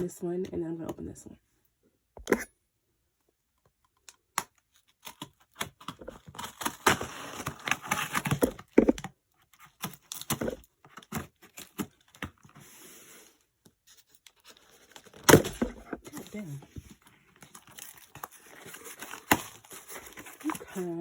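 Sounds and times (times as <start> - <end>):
packaging tearing and crinkling: 5.0 - 8.7, 17.4 - 20.8.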